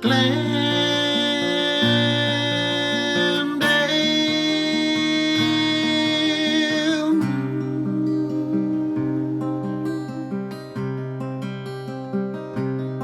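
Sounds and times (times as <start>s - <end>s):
wavering held melody notes: 0.0s - 11.4s
acoustic guitar strumming: 0.0s - 13.0s.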